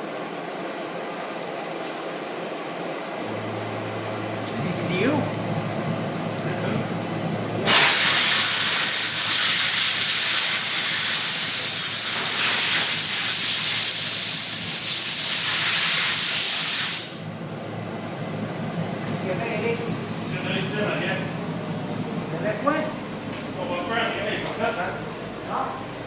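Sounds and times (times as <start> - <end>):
steam cleaner spraying steam: 7.6 - 17.2.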